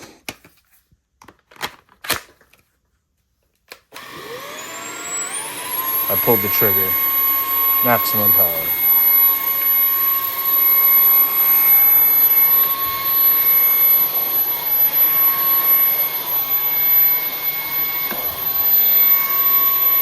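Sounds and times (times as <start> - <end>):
vacuum cleaner whining: 3.9 - 20.0.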